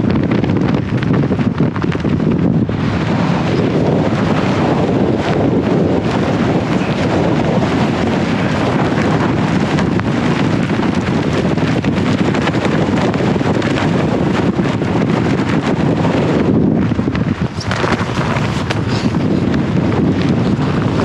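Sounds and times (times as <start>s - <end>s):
strong wind on microphone: 0.0s - 21.0s.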